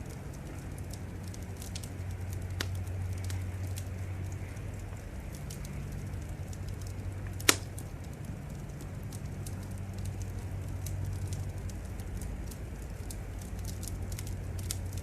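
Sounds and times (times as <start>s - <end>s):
steady low hum: 0.0s - 15.0s
wood fire crackling: 0.0s - 15.0s
loud pop of fire: 7.4s - 7.8s.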